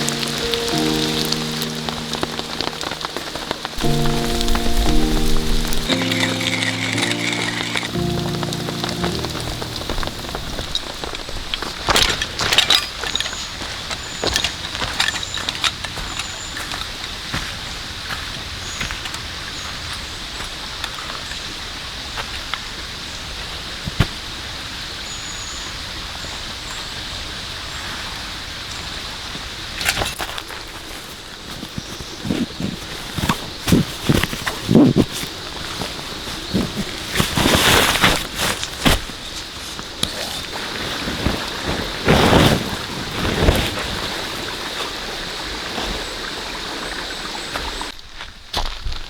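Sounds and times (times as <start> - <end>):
steady falling rain: 0.0 - 15.2
steady rain: 0.0 - 16.2, 31.7 - 48.0.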